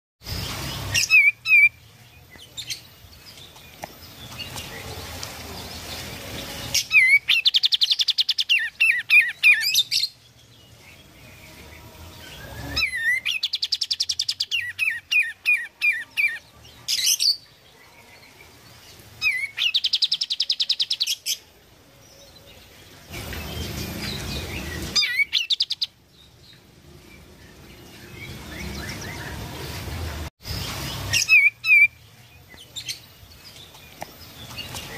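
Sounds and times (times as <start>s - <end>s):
bird singing high notes: 11.0s - 17.4s, 23.2s - 26.0s.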